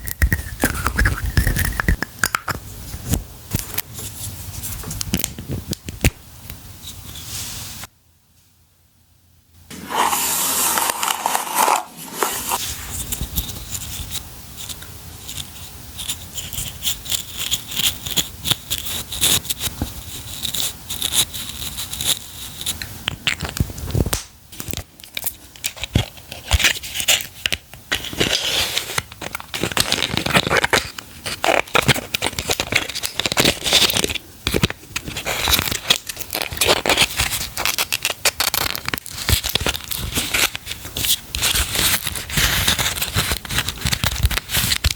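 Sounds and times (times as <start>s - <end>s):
packaging crinkling and tearing: 16.4s - 44.9s.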